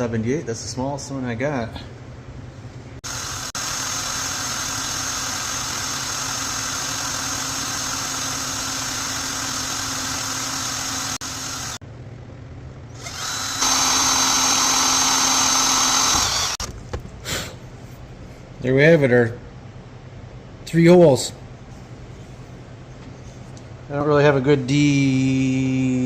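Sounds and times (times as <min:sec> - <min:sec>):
power drill drilling metal: 0:03.1 - 0:11.8, 0:13.0 - 0:16.7.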